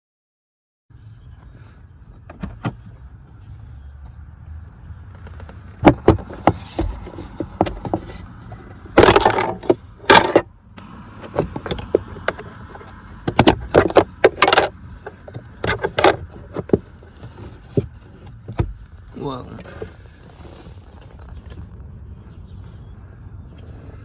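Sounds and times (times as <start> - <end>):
filter scraping and rustling: 5.2 - 10.4, 11.2 - 21.8
plastic clicks and knocks: 5.2 - 10.4, 11.2 - 18.9.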